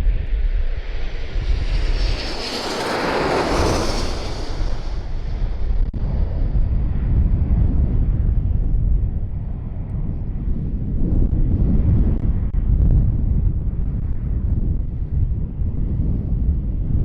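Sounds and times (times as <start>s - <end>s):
airliner passing overhead: 0.0s - 12.6s
wind rumbling on microphone: 0.0s - 17.0s.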